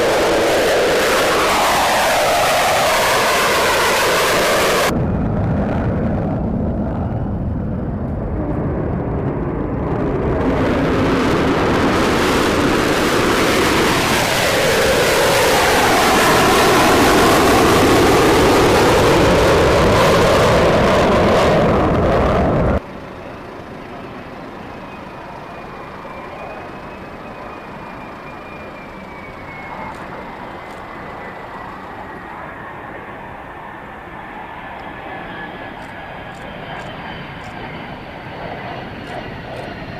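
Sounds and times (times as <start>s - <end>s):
jet engine roaring overhead: 0.0s - 39.9s
steady jet noise with high whine: 0.0s - 39.9s.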